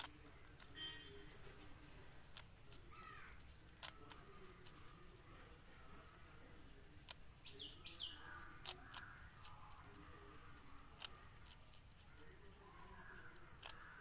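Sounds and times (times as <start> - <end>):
faint high whine: 0.0 - 8.4
bird chirps: 0.0 - 14.0
faint sharp clicks: 7.0 - 7.7, 8.3 - 11.6.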